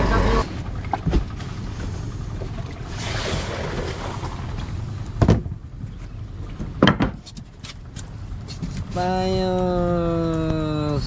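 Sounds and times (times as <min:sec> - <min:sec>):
boat engine droning: 0:00.0 - 0:06.8
wind: 0:00.0 - 0:11.0
water rushing: 0:00.4 - 0:05.2
sharp knocks on boat: 0:00.8 - 0:02.6, 0:03.8 - 0:05.6, 0:06.6 - 0:07.3.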